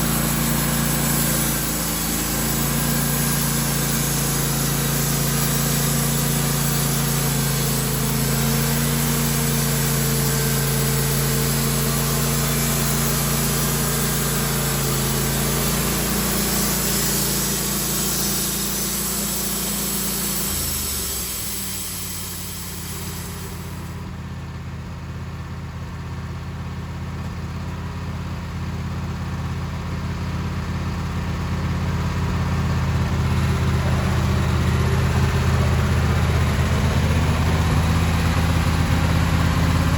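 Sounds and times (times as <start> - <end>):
high hiss: 0.0 - 24.0
sawmill engine running: 0.0 - 24.7, 28.9 - 39.9.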